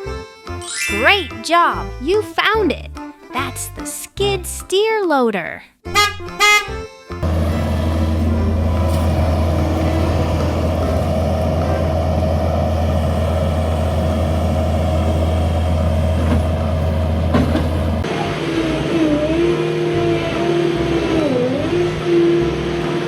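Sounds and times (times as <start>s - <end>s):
loader engine running: 7.2s - 23.0s.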